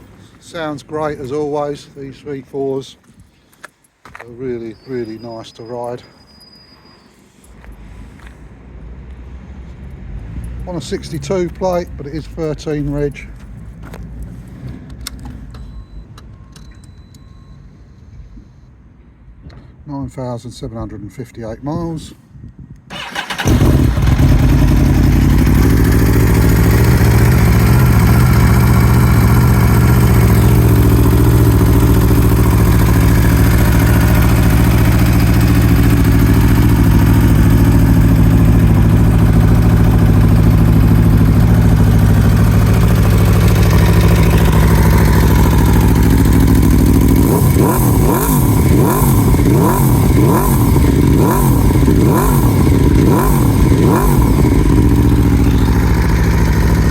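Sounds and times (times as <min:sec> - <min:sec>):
motorcycle engine idling and revving: 0:22.9 - 0:56.9.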